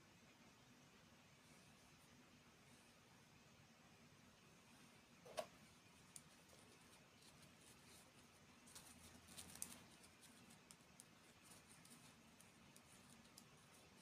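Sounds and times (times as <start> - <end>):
faint clicks and light taps: 5.2 - 14.0.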